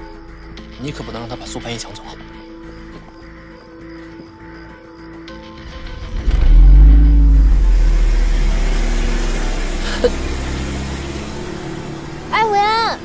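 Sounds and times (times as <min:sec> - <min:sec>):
car engine revving: 0:05.6 - 0:13.0.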